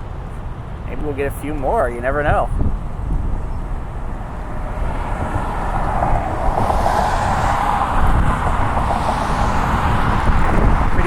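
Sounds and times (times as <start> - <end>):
jet engines whining: 3.0 - 11.0.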